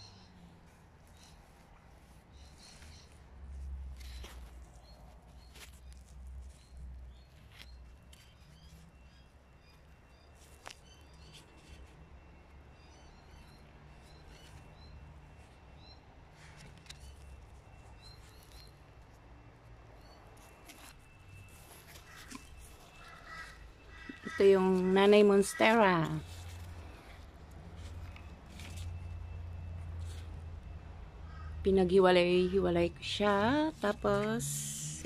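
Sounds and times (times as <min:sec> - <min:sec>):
small birds chirping: 0:00.0 - 0:11.9, 0:12.8 - 0:18.9.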